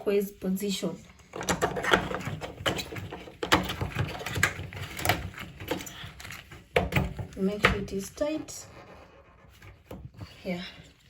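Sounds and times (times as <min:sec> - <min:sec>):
plastic part knocking and clicking: 0:01.3 - 0:06.0.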